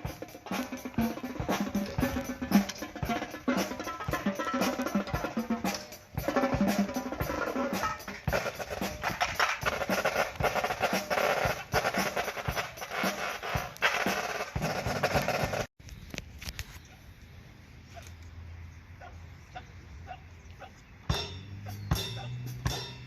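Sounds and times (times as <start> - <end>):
bass drums: 0.0 - 15.7, 21.1 - 23.0
snare drum rolls: 0.0 - 15.7.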